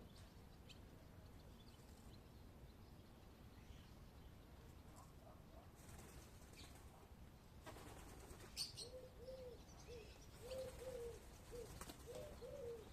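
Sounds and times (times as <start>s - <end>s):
bird cooing: 8.6s - 12.9s.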